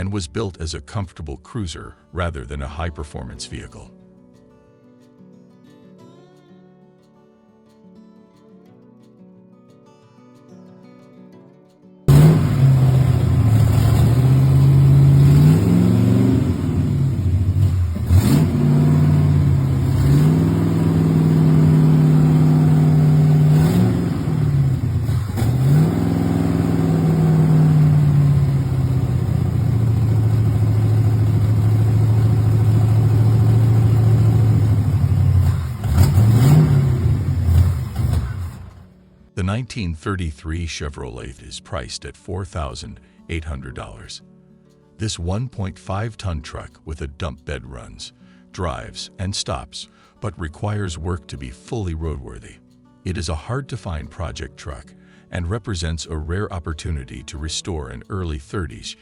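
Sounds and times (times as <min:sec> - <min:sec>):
car engine idling and revving: 0:12.1 - 0:39.0.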